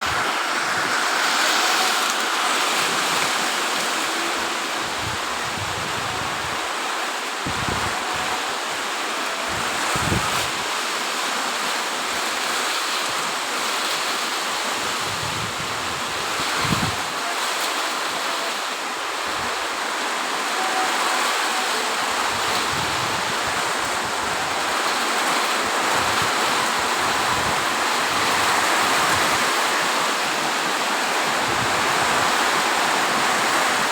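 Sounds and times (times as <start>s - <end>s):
heavy rain in strong wind: 0.0s - 33.9s
wind buffeting microphone: 2.7s - 8.6s, 9.5s - 10.8s, 14.8s - 17.1s.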